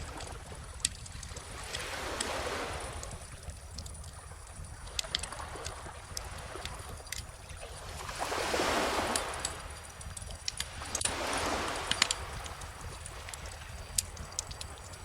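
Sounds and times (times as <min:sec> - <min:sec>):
gentle ocean waves: 0:00.0 - 0:15.0
wood fire crackling: 0:00.0 - 0:15.0.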